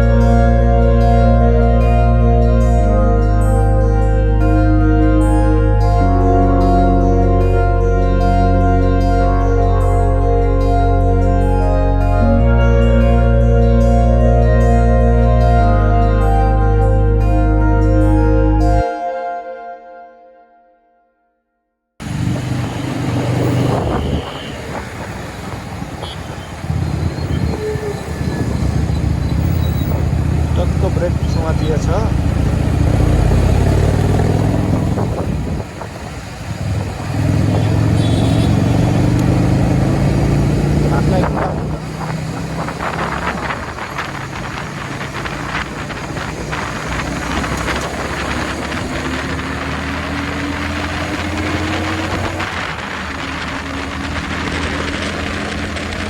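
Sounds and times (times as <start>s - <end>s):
motorcycle engine and road rumble: 22.0s - 56.0s.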